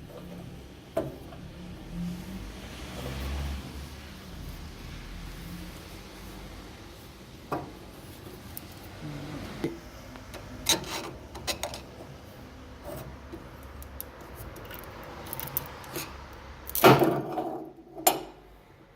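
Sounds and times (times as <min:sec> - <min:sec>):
metal tools scraping and rubbing: 0:10.6 - 0:12.0.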